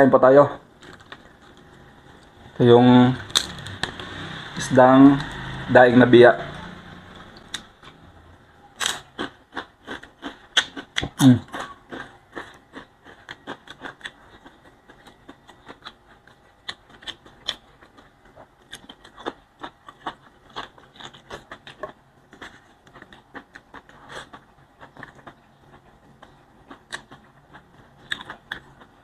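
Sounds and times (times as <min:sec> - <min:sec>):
crunching and chewing fish: 0:00.8 - 0:02.4, 0:08.8 - 0:29.0
mouth clicks and smacks: 0:08.8 - 0:14.1.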